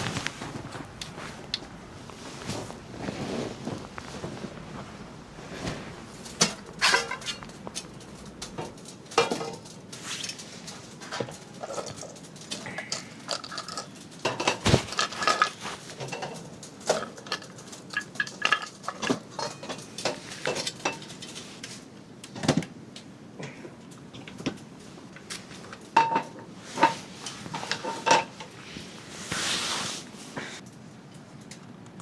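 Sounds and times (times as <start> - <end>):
dishes and cutlery clinking: 5.6 - 10.0, 11.0 - 21.4, 26.0 - 28.5.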